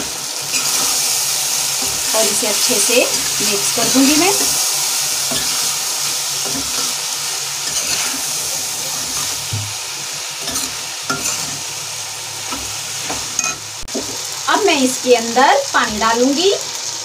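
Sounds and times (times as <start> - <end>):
food sizzling in oil: 0.0 - 17.0
spatula scraping a metal pot: 10.4 - 11.6.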